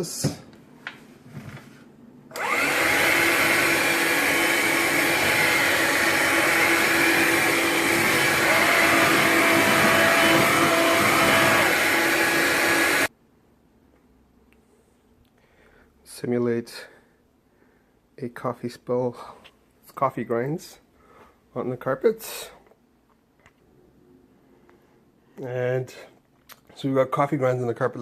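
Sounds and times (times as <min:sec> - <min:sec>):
cordless stick vacuum running: 0:02.3 - 0:13.1.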